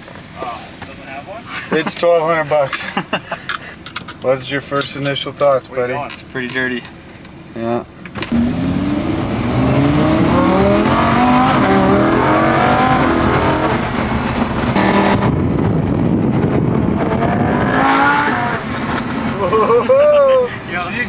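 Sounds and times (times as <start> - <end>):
road noise: 0.0 - 21.0
car engine accelerating hard: 8.2 - 21.0.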